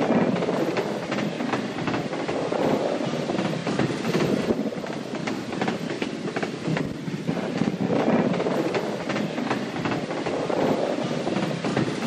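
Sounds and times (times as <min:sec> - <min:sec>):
train wheels clattering on rails: 0:00.0 - 0:12.0.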